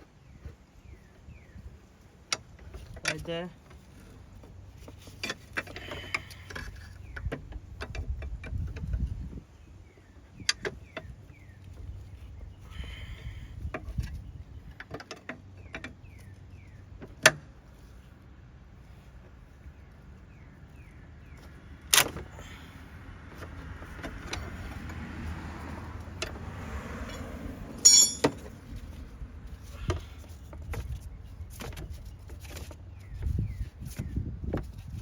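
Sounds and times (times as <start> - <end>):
metal tools clinking on metal: 27.0 - 28.5
loud metallic clanks: 27.8 - 28.4.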